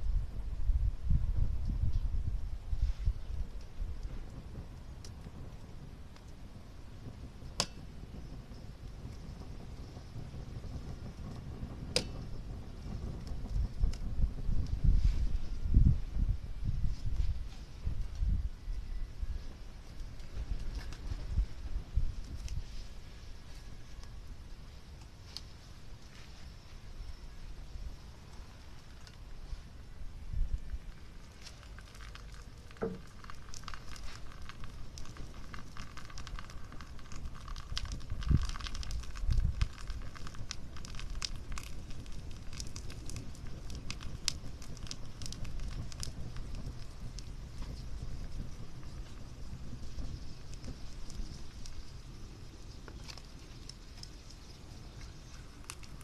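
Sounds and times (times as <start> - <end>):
wind buffeting microphone: 0.0 - 26.1, 26.8 - 56.0
wood fire crackling: 0.0 - 56.0
sharp pops: 11.3 - 14.1, 31.3 - 56.0.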